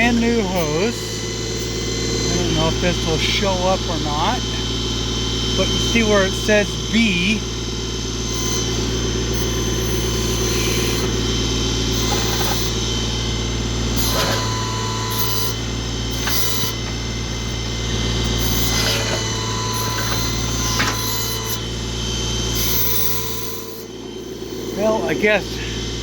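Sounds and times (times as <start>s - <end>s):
tractor engine idling: 0.0s - 9.3s
steady high whine: 0.0s - 26.0s.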